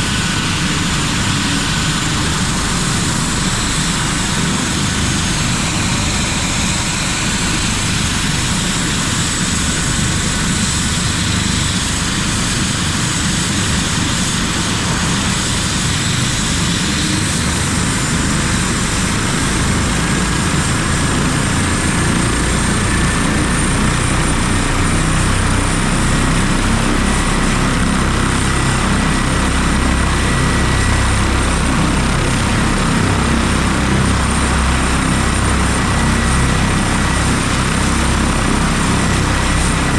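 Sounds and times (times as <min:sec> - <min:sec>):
helicopter rotor and engine: 0:00.0 - 0:39.9
high whine: 0:14.0 - 0:39.9.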